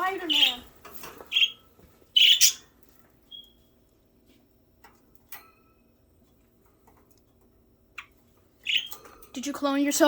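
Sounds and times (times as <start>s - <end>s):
budgies tapping in cage: 0.1s - 2.7s, 6.4s - 9.5s.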